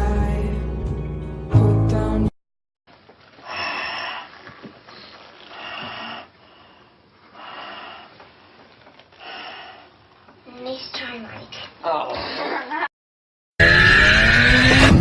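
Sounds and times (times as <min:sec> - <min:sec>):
music: 0:00.0 - 0:02.3
loud snoring breaths: 0:04.9 - 0:08.2.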